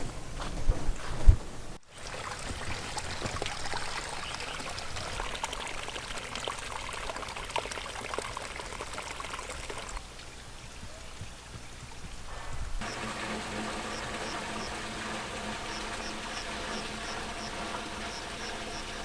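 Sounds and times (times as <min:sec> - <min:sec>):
water trickling: 0:01.8 - 0:19.0
drops ticking: 0:01.9 - 0:19.0
steady rain: 0:08.0 - 0:19.0.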